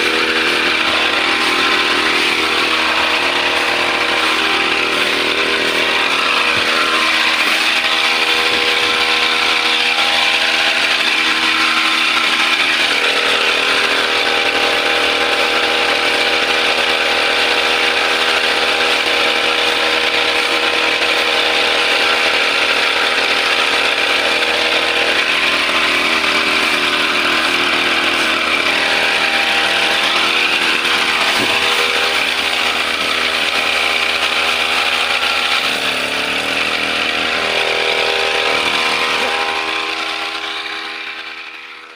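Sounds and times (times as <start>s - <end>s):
brush cutter engine running: 0.0s - 41.9s.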